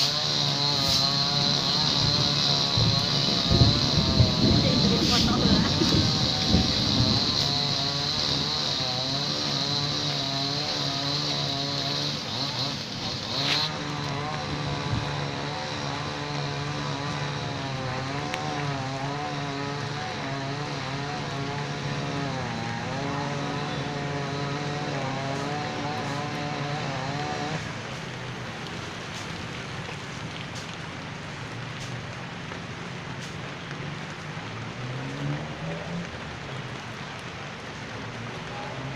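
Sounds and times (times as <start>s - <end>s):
high steady whine: 0.0s - 16.0s
chainsaw cutting wood: 0.0s - 29.4s.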